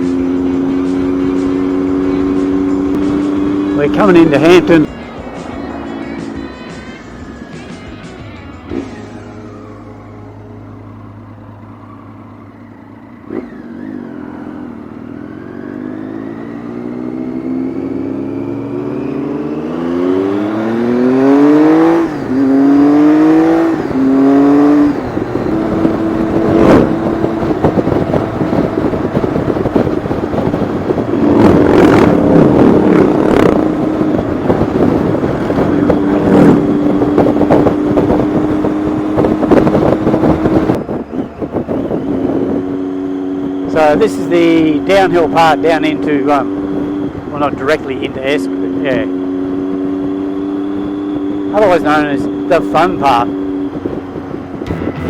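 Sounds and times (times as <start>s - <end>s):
motorcycle engine accelerating: 0.0s - 55.0s
wind noise on microphone: 13.2s - 55.0s.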